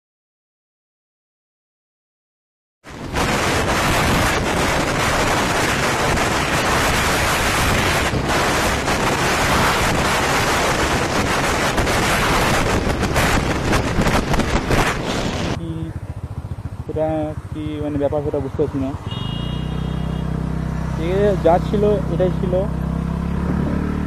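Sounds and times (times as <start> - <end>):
wind buffeting microphone: 2.9 - 19.1.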